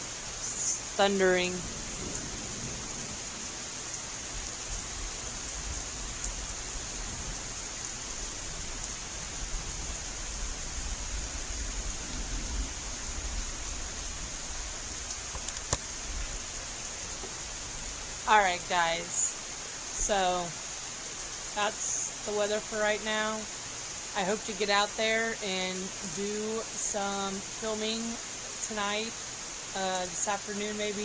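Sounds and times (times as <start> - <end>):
thunder rumbling: 0.0 - 19.3
heavy rain pouring: 0.0 - 31.0.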